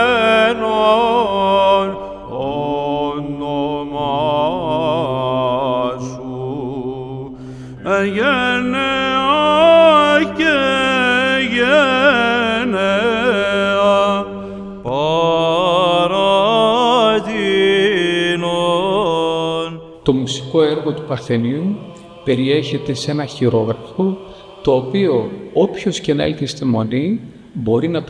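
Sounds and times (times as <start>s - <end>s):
group chanting ornate melody: 0.0s - 28.0s
low sung drone: 20.0s - 28.0s.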